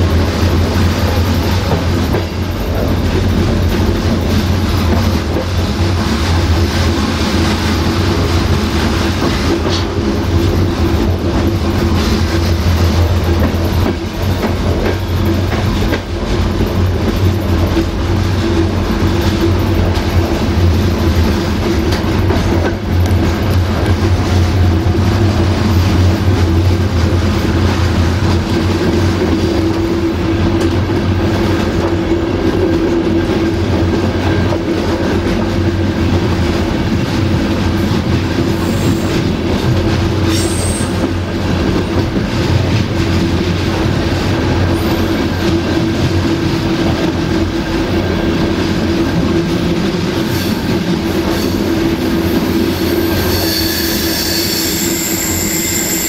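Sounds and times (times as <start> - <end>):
train wheels rumbling on rail: 0.0 - 56.0
high wheel squeal: 40.3 - 41.1, 51.3 - 56.0.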